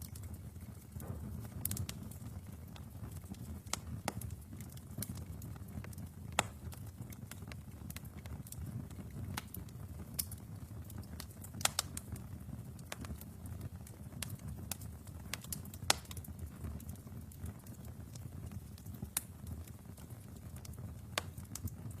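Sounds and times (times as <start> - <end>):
wood fire crackling and popping: 0.0 - 22.0.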